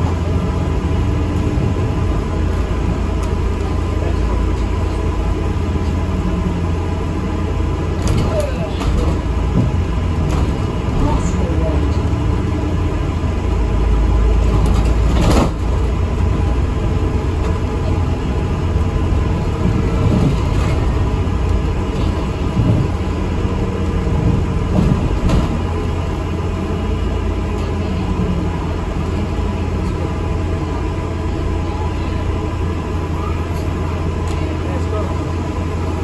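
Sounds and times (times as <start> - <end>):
bus engine and road rumble: 0.0 - 36.0.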